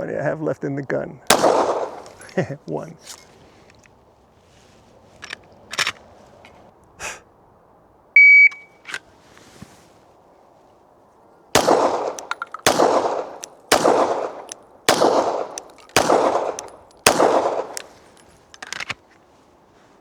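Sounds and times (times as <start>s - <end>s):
pistol shots echoing: 1.3s - 2.9s, 11.5s - 18.3s.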